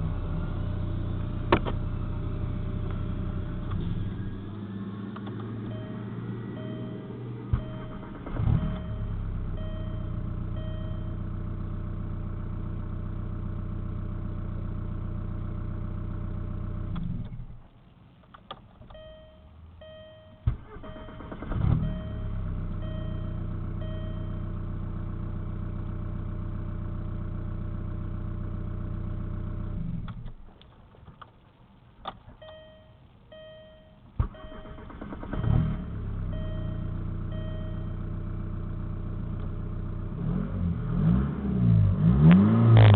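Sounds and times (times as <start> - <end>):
diesel engine starting and idling: 0.0 - 18.1, 18.7 - 30.9, 31.8 - 42.9
steady beeping tone: 5.7 - 11.2, 19.0 - 20.4, 21.8 - 24.4.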